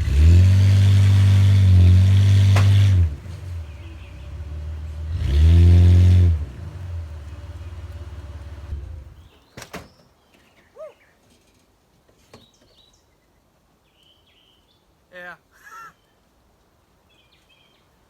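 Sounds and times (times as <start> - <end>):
pickup truck engine revving: 0.0 - 9.3
birds chirping: 3.2 - 5.4, 6.5 - 11.6, 12.3 - 16.2.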